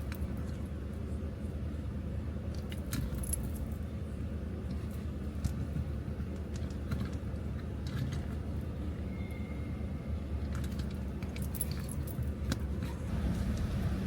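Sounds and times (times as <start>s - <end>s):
car engine rumble: 0.0s - 14.0s
small clicks and rattles: 6.3s - 8.4s, 10.4s - 12.6s.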